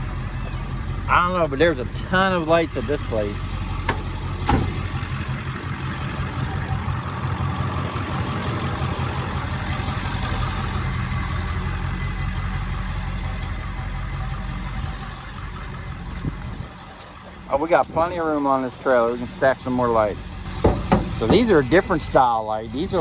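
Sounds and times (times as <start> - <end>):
vehicle engine idling: 0.0 - 23.0
sharp knock: 20.6 - 21.4.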